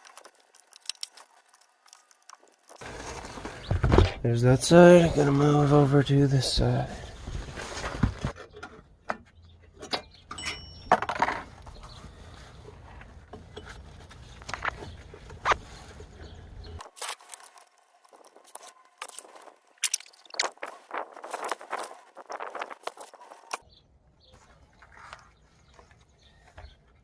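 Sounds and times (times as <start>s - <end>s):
metal tools clinking and knocking: 9.8s - 11.6s.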